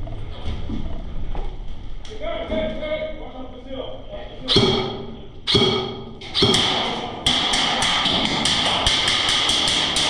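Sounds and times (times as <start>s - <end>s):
airsoft gunfire: 5.5s - 10.0s.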